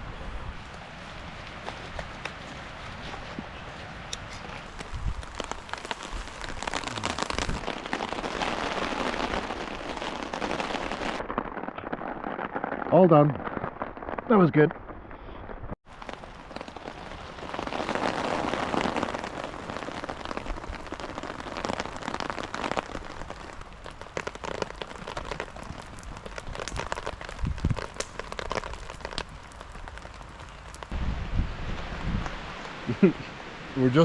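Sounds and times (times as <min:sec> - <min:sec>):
rain pattering: 0:00.0 - 0:34.0.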